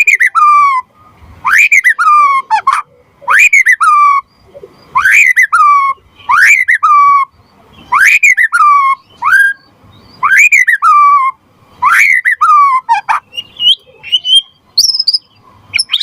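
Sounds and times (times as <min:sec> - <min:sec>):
songbird whistling phrase: 0:01.4 - 0:02.4, 0:05.0 - 0:16.0.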